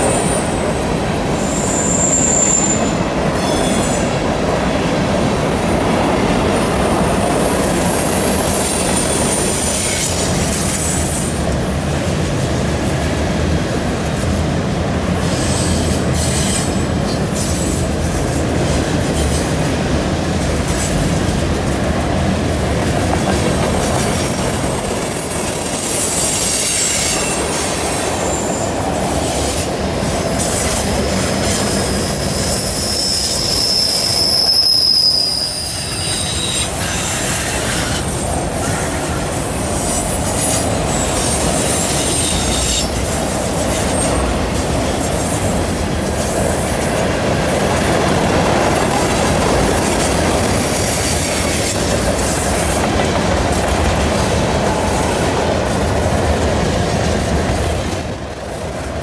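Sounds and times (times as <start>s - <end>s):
high wheel squeal: 0.0s - 4.2s, 7.6s - 11.4s, 22.0s - 45.6s
freight cars rumbling and rattling: 13.3s - 26.6s, 35.9s - 59.0s.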